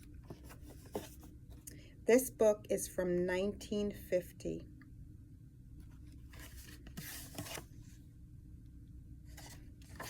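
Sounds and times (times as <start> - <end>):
book pages rustling: 0.0 - 1.6, 5.9 - 8.0, 9.3 - 10.0.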